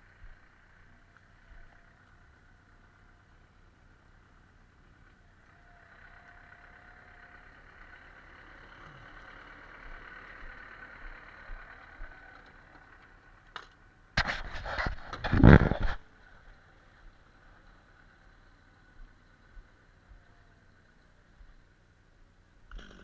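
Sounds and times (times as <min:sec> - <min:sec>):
distant engine running: 0:00.0 - 0:23.0
loud rough noise: 0:14.2 - 0:16.1.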